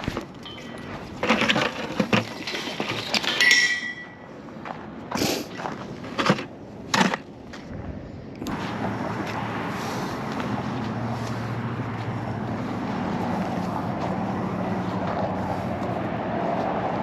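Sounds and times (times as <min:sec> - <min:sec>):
knocks and clatters: 0:00.0 - 0:04.3
road traffic noise: 0:00.0 - 0:17.0
short metallic ring: 0:00.4 - 0:00.9, 0:03.4 - 0:04.3.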